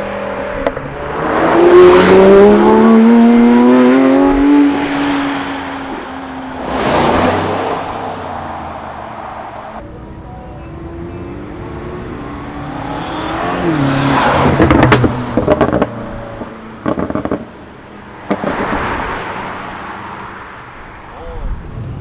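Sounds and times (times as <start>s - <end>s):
car engine accelerating: 0.0s - 17.6s
exhaust pops and crackles: 14.5s - 17.6s, 18.2s - 19.0s.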